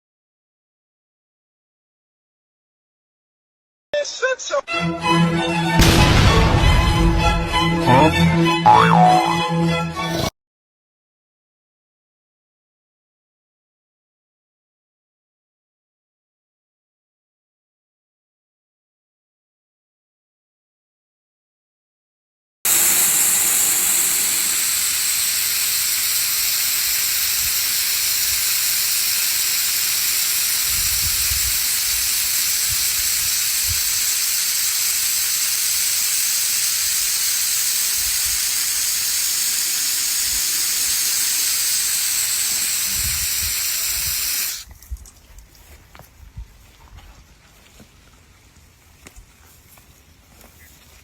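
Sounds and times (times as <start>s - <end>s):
pressure washer spraying: 22.7s - 44.7s.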